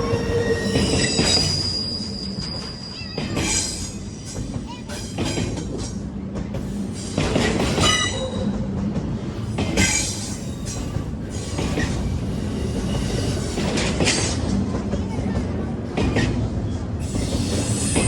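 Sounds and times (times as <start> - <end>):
high-pitched wheel squeal: 0.0 - 3.8
train wheels rumbling on rail: 0.0 - 18.0.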